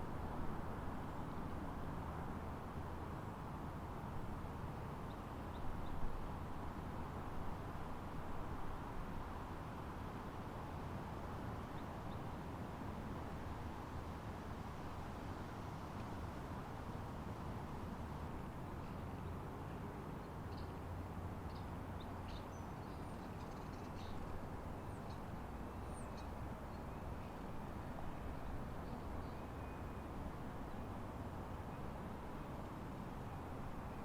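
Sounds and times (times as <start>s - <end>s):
faint bird chirps: 21.5s - 24.2s.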